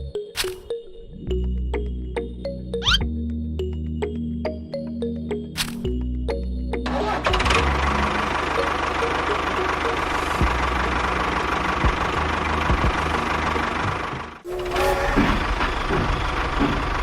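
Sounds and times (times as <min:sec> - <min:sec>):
engine running: 0:05.8 - 0:17.0.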